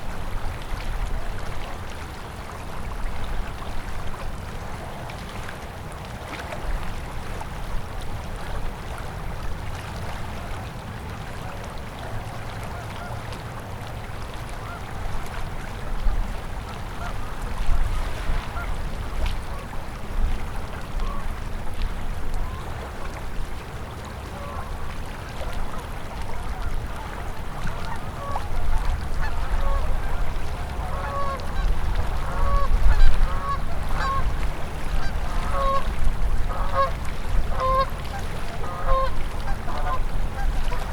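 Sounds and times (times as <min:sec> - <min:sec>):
river water flowing: 0:00.0 - 0:40.9
geese honking: 0:29.2 - 0:34.2, 0:35.0 - 0:35.8, 0:36.5 - 0:36.9, 0:37.5 - 0:37.9, 0:38.6 - 0:40.0.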